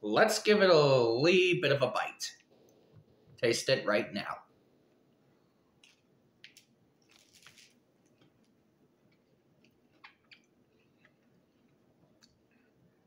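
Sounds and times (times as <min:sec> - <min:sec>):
soft chewing crunches: 0:04.9 - 0:13.0.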